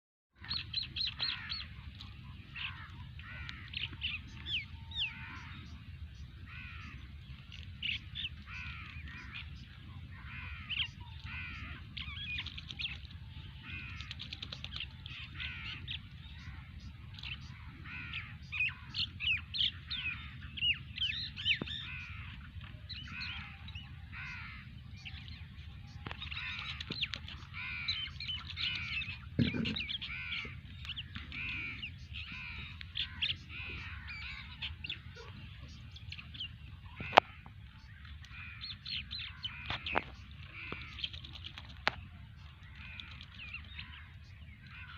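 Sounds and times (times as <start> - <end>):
birds calling and chattering: 0.4 - 44.9
steady low rumble: 0.5 - 14.0, 14.6 - 41.0.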